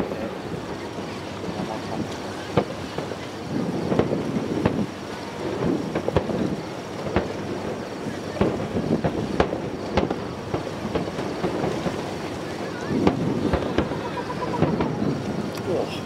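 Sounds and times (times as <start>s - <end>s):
fireworks bursting: 0.0s - 16.0s.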